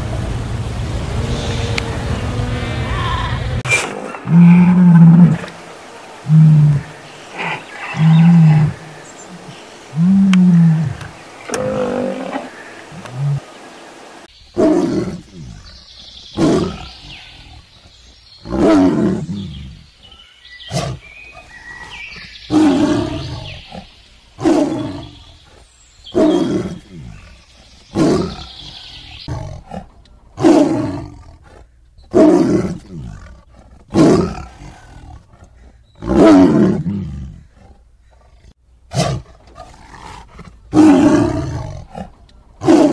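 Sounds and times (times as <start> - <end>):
tigers roaring: 1.1 - 15.7, 26.1 - 42.9
lioness giving short low calls: 6.2 - 13.5.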